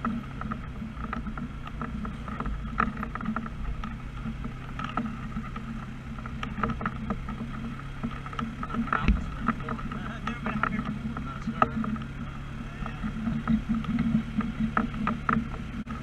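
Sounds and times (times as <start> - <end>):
small rattling clicks: 0.0 - 16.0
vehicle engine and road drone: 0.0 - 16.0.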